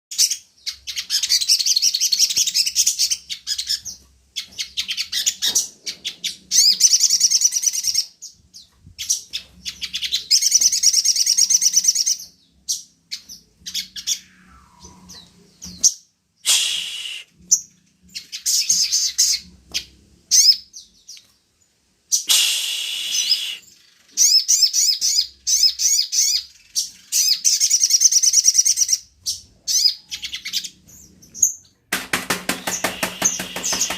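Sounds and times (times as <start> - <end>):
bird call notes: 32.5 - 33.9
bird chattering trills: 32.5 - 33.9.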